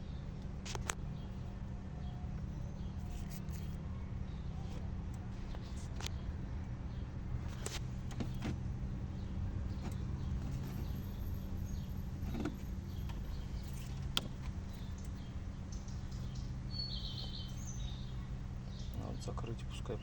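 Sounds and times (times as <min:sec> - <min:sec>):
car engine idling: 0:03.8 - 0:20.0.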